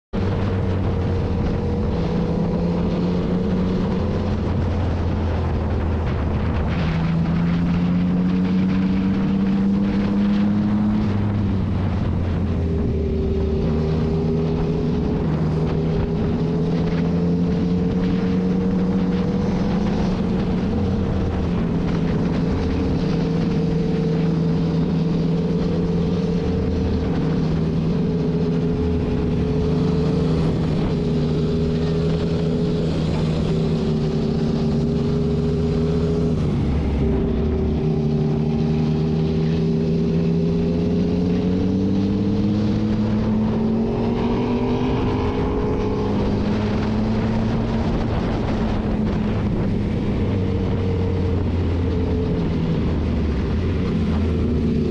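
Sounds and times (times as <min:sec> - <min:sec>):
motorcycle engine revving: 0:00.1 - 0:54.9
wind rushing: 0:00.2 - 0:54.9.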